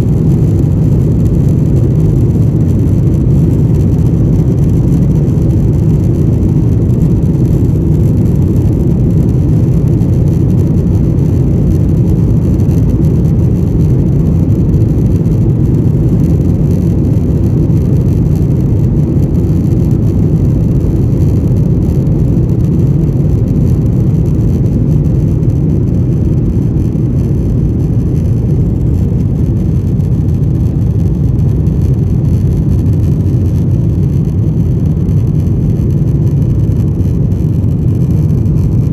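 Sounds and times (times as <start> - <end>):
jet engine rumble in cabin: 0.0 - 38.9.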